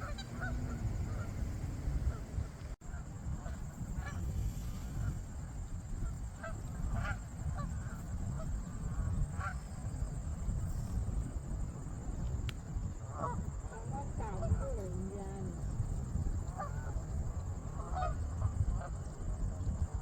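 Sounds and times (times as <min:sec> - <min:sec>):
geese honking: 0:00.0 - 0:04.2
steady low rumble: 0:00.0 - 0:20.0.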